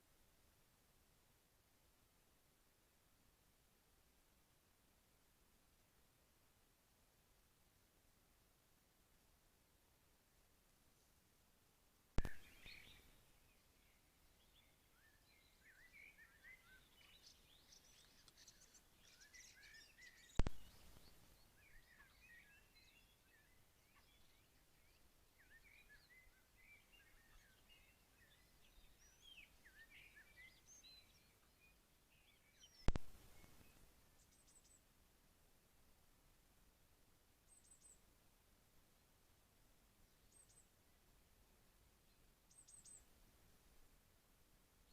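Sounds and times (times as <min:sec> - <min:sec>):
songbird chirping: 0:09.2 - 0:44.9
sharp clicks: 0:32.9 - 0:33.6.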